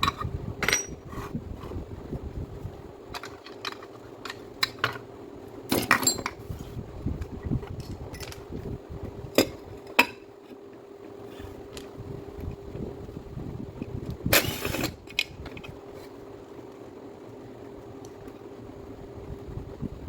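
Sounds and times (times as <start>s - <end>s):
small metal parts clinking: 0.0s - 1.0s, 3.1s - 5.0s, 5.7s - 6.4s, 7.8s - 8.5s
steady hum: 0.0s - 20.0s.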